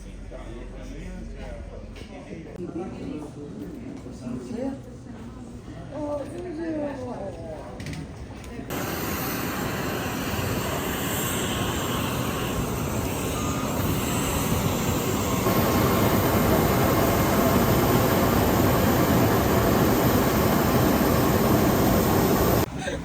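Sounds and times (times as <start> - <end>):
turboprop engines running: 8.7 - 22.7.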